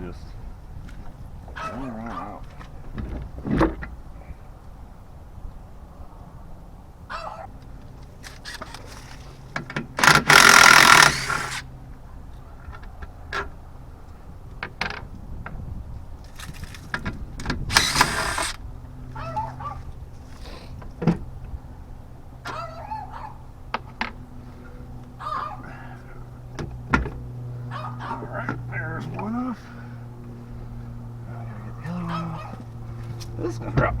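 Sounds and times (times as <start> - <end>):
loud noisy scrapes: 10.0 - 11.6, 17.7 - 18.6.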